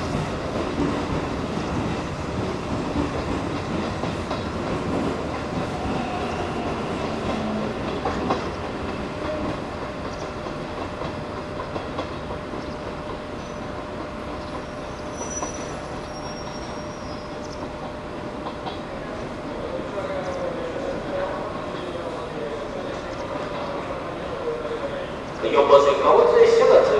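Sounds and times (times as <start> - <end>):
train wheels clicking over rail joints: 0.0 - 19.0
faint high wheel squeal: 14.6 - 17.6.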